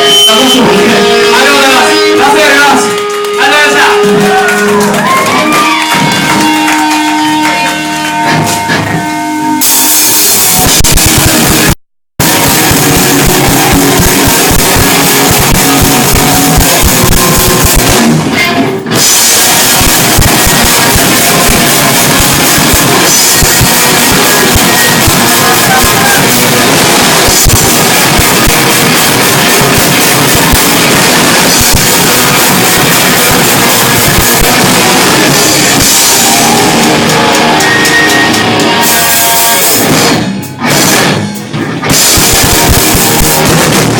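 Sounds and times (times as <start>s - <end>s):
electric guitar: 0.0s - 43.9s
pounding drum kit: 0.0s - 43.9s
rock band playing live: 0.0s - 43.9s.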